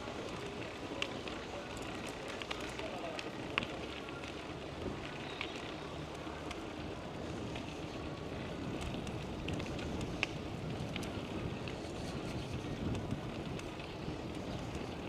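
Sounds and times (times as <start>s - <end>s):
bicycle tyre noise: 0.0s - 15.0s
wind on microphone: 8.5s - 15.0s.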